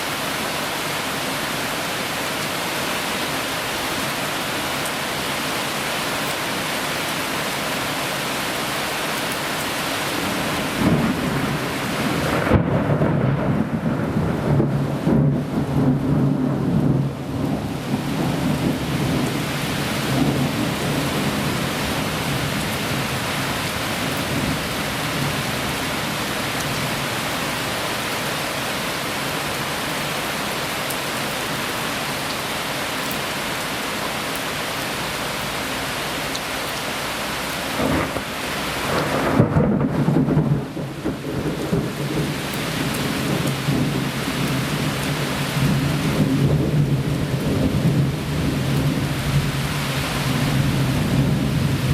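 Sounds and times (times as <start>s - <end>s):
heavy rain pouring: 0.0s - 51.9s
thunder rumbling: 10.2s - 28.8s, 37.8s - 51.9s
loud thunderclap: 10.8s - 19.4s, 20.1s - 21.5s, 37.8s - 44.2s.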